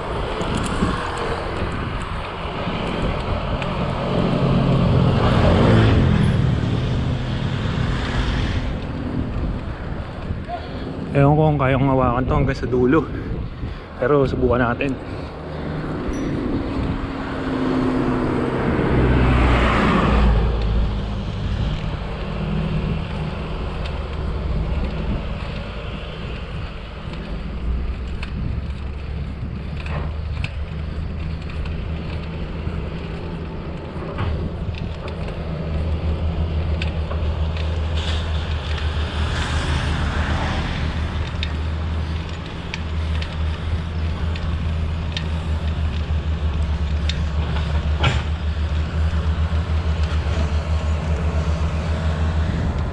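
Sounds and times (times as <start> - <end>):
motor vehicle passing: 0.0 - 52.9
road traffic rumble: 0.0 - 52.9
wind noise: 0.0 - 52.9.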